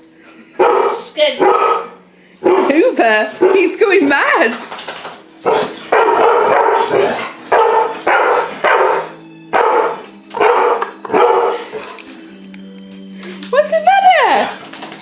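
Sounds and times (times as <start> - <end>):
dog barking: 0.6 - 3.8, 5.4 - 11.9.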